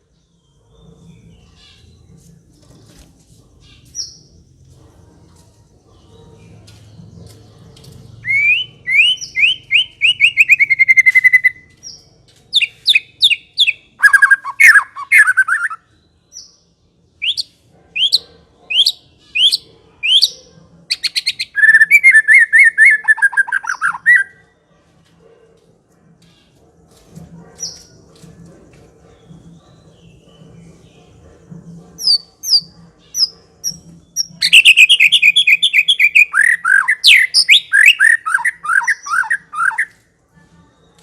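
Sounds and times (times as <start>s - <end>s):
bird singing whistled phrases: 8.2s - 11.6s, 12.6s - 15.8s, 21.0s - 24.4s, 34.4s - 39.9s.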